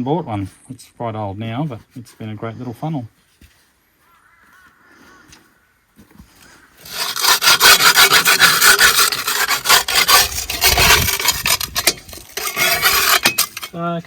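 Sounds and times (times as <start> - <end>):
rough scraping on hard surface: 4.9 - 14.0.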